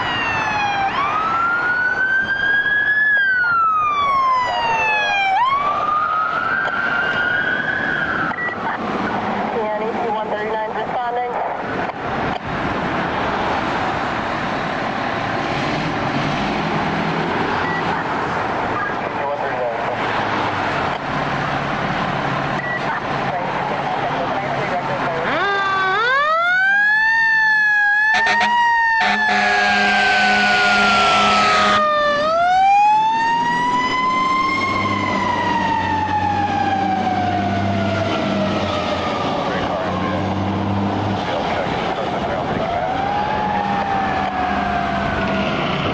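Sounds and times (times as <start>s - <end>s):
siren wailing: 0.0s - 11.0s, 22.5s - 40.7s, 41.3s - 45.9s
vehicle road noise: 0.0s - 45.9s
loud blaring horn: 28.1s - 32.0s.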